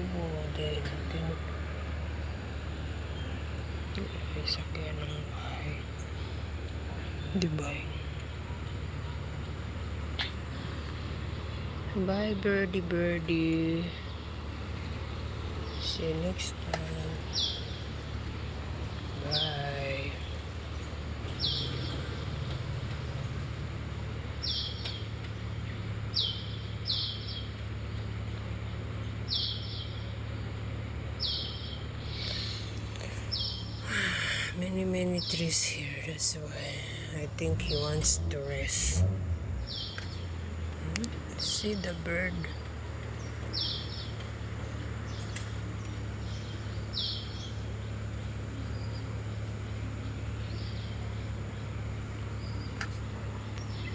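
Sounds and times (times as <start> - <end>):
steady low hum: 0.0 - 53.9
bird chirping: 15.5 - 22.6, 24.4 - 28.0, 28.6 - 30.2, 31.2 - 33.9, 39.6 - 40.4, 41.3 - 51.7, 52.3 - 53.9.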